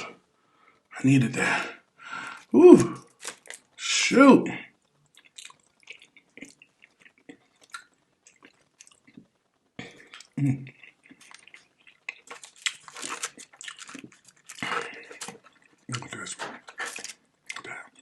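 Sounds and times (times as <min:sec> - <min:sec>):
chewing and lip-smacking: 0:04.8 - 0:18.0.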